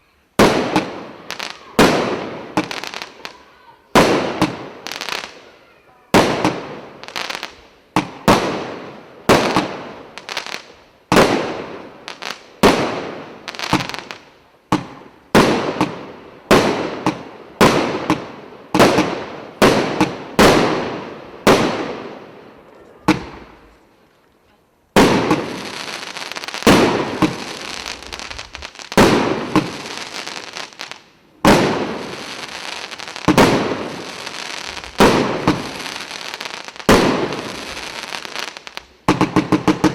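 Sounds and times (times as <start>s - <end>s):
fireworks crackling hiss: 0.0s - 39.9s
fireworks bangs: 0.4s - 23.9s, 24.9s - 39.9s.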